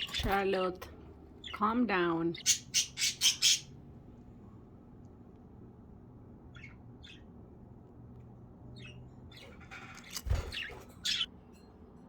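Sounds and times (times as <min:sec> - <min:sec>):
budgerigars chirping: 0:02.4 - 0:03.7, 0:06.5 - 0:07.3, 0:10.5 - 0:11.3
harsh bird squawks: 0:02.4 - 0:03.8.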